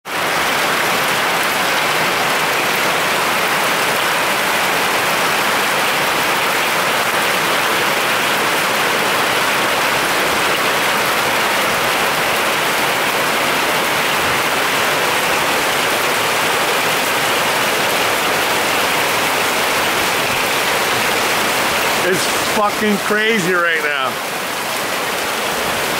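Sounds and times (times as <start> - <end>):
heavy rain on pavement: 0.0 - 25.9.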